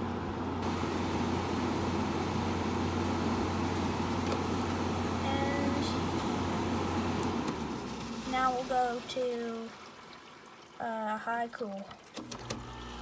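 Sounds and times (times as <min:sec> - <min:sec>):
air conditioner air rushing: 0:00.0 - 0:08.8
fan motor hum: 0:00.0 - 0:09.5.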